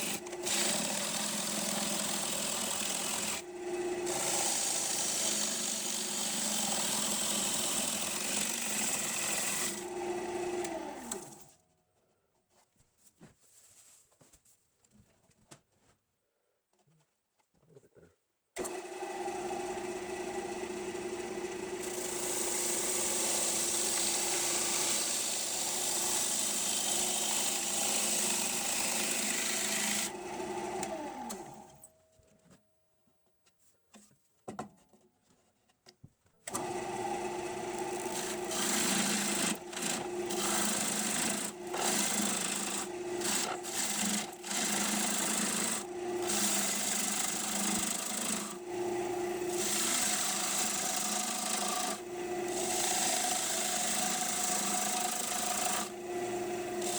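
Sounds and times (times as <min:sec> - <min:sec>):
wood lathe spinning: 0:00.0 - 0:11.5, 0:18.6 - 0:31.8, 0:36.5 - 0:56.9
turning tool cutting wood: 0:00.0 - 0:11.6, 0:18.6 - 0:31.9, 0:36.4 - 0:56.9.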